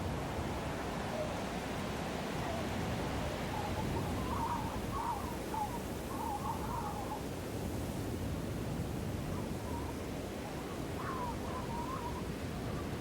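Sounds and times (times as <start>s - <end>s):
short wavering calls: 3.5s - 7.2s.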